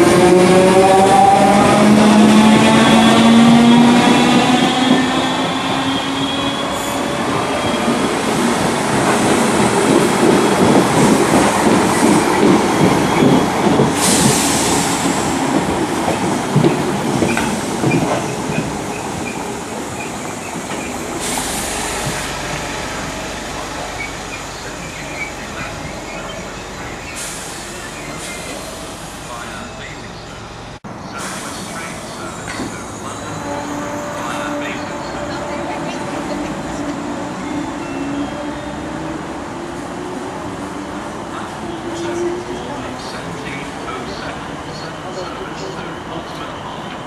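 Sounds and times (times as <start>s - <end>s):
train wheels clattering over rails: 7.0s - 26.3s.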